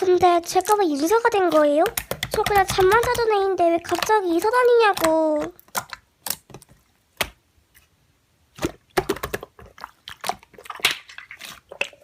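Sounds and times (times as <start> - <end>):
slime clicking and popping: 1.4 - 7.4, 8.6 - 12.0.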